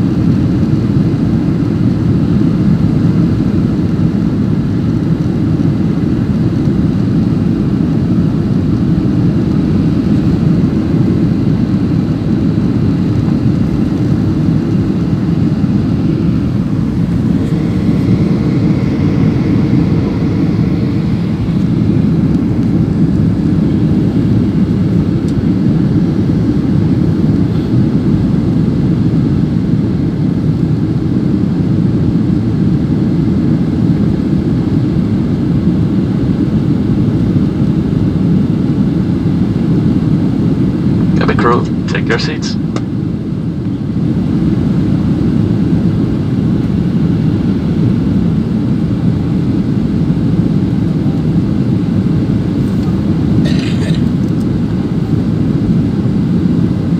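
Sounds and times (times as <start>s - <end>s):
airliner cabin engine rumble: 0.0s - 36.5s, 40.8s - 43.0s, 44.6s - 56.9s
faint hum: 5.6s - 27.9s, 41.0s - 42.9s, 51.9s - 56.9s.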